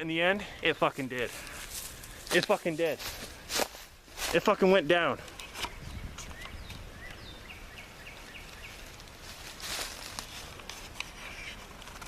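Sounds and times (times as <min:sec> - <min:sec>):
bird chirping: 0:05.3 - 0:09.0.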